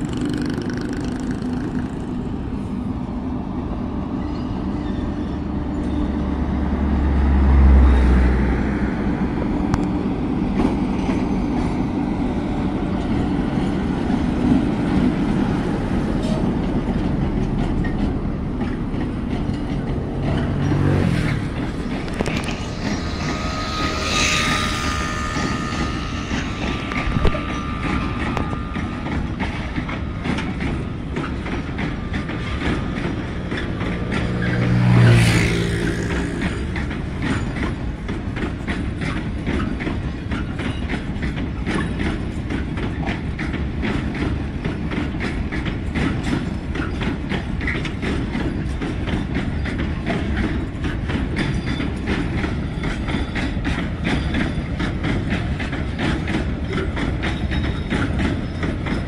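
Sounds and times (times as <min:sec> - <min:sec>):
wheels clacking over rail joints: 0:00.0 - 0:03.2, 0:04.1 - 0:59.0
train wheels rumbling on rails: 0:00.0 - 0:59.0
deep rumble: 0:17.2 - 0:31.8
high wheel squeal: 0:20.3 - 0:38.0.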